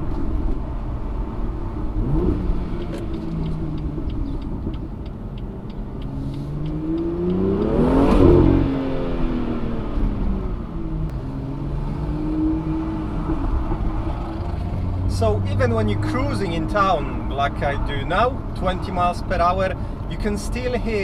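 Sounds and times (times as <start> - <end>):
car engine revving: 0.1 - 18.5.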